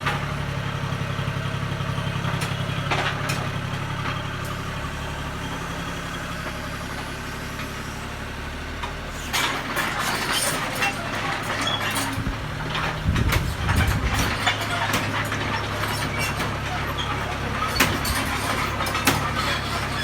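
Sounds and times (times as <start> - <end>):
excavator diesel engine running: 0.0 - 20.0
loud rattling crackling noise: 9.8 - 20.0.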